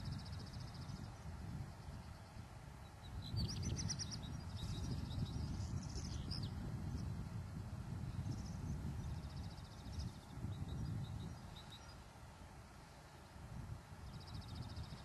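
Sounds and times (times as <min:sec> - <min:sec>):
small bird chirping: 0:01.8 - 0:07.1, 0:08.2 - 0:12.1.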